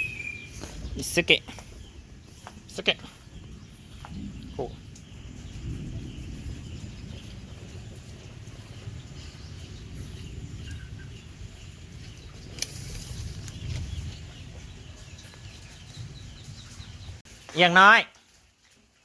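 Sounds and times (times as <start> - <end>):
faint bird chirps: 0.0 - 1.0
steady low rumble: 0.0 - 17.2.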